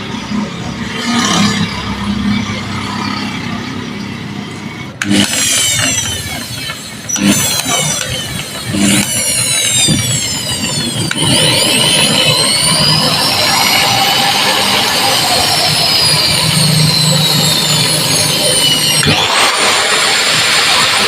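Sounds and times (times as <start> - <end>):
electric motor whining: 5.0 - 21.0.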